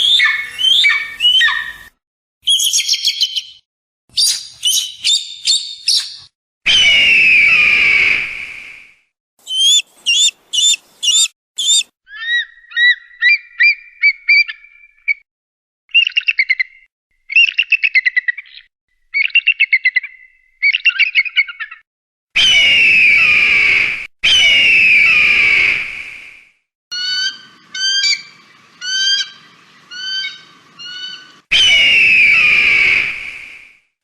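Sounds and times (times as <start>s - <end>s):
eagle whistles: 6.7s - 11.9s, 30.0s - 33.8s
eagle chattering calls: 9.4s - 11.8s
eagle screams: 9.4s - 12.4s, 27.0s - 33.2s.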